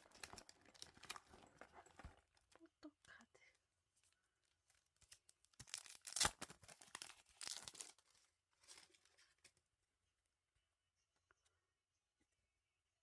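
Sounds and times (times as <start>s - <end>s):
packaging tearing and rustling: 0.0s - 2.3s, 5.0s - 9.5s.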